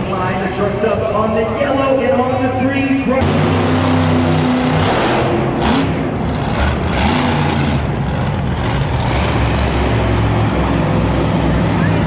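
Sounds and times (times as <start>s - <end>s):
monster truck engine revving: 3.2s - 12.0s.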